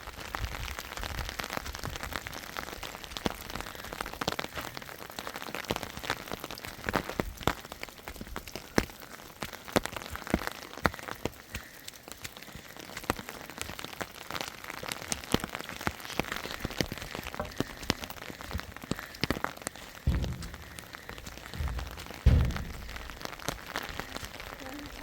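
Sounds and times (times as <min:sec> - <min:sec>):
rain drops striking a surface: 0:00.0 - 0:25.0
low thump: 0:20.1 - 0:24.0.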